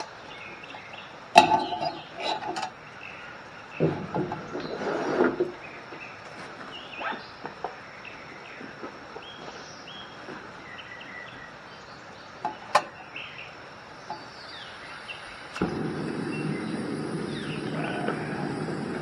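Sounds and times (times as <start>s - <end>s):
small birds chirping: 0.0s - 19.0s
high insect buzz: 14.2s - 19.0s.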